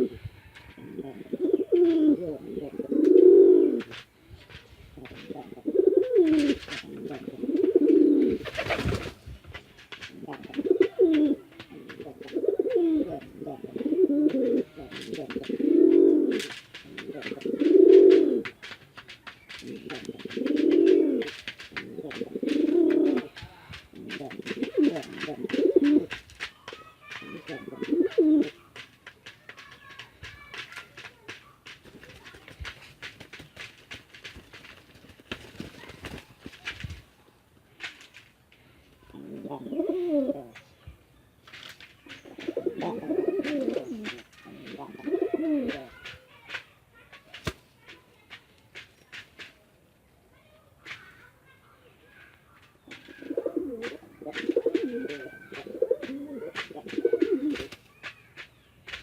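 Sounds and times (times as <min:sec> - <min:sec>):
pigeons cooing: 0:00.0 - 0:04.0, 0:05.0 - 0:09.2, 0:10.0 - 0:18.7, 0:19.5 - 0:26.2, 0:27.2 - 0:28.6, 0:39.1 - 0:40.6, 0:42.2 - 0:46.1, 0:52.9 - 0:57.8.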